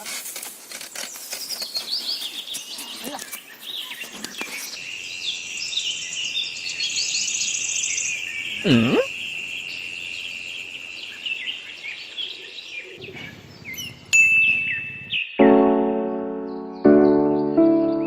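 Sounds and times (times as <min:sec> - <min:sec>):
birds chirping: 0:00.9 - 0:15.7
sharp ding: 0:14.2 - 0:15.2
piano music: 0:14.2 - 0:18.0.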